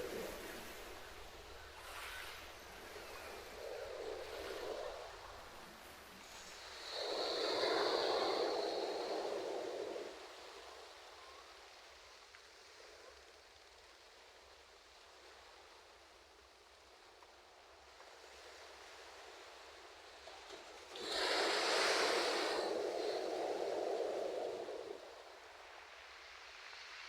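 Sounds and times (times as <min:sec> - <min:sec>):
wave breaking with rushing hiss: 0:00.0 - 0:11.8, 0:20.2 - 0:27.0
soft wash of water: 0:00.0 - 0:27.0.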